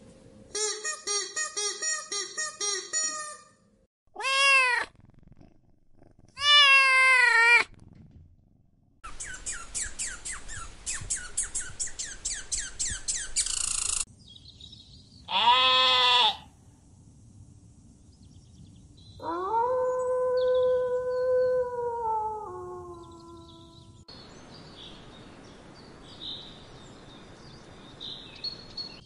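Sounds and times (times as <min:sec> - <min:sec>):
cat meowing: 0:04.2 - 0:04.9, 0:06.4 - 0:07.7
goat bleating: 0:15.3 - 0:16.4.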